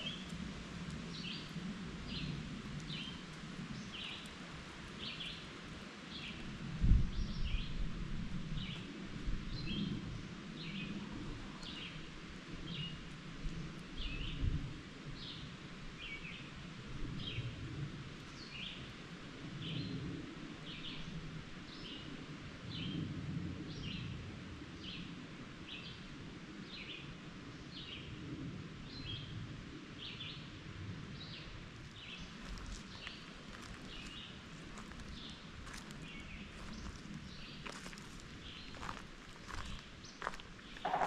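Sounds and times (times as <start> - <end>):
bird chirping: 38.6 - 41.0.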